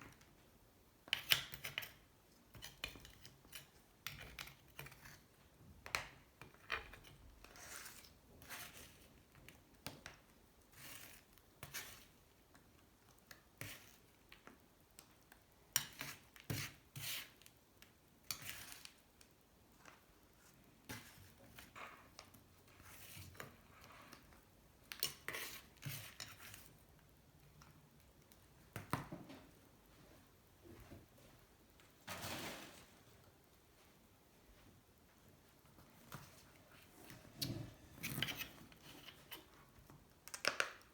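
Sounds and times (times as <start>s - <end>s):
metal spoon scraping metal: 37.3s - 39.6s.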